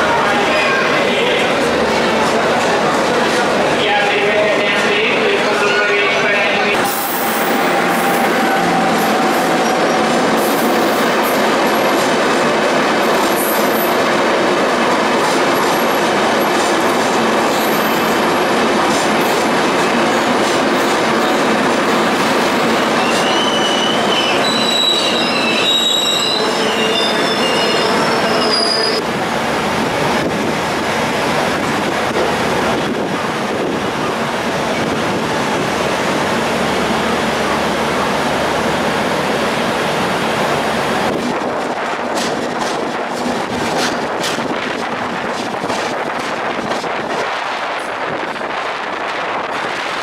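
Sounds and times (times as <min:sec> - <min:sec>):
train rumbling on rails: 0:00.0 - 0:50.0
train wheels squealing: 0:22.9 - 0:29.0.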